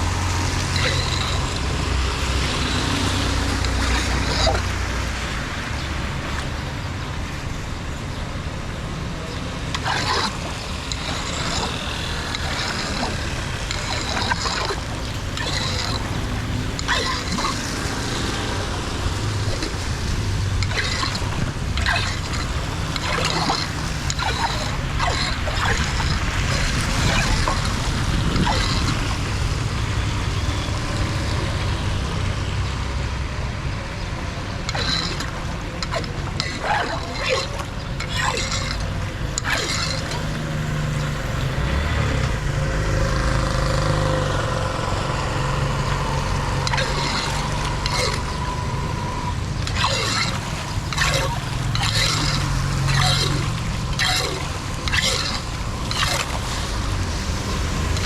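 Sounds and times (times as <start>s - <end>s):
splashes and knocks: 0.0s - 6.8s, 9.6s - 30.0s, 34.6s - 42.5s, 45.6s - 48.4s, 49.6s - 58.0s
floodwater rushing into drain: 0.0s - 58.0s.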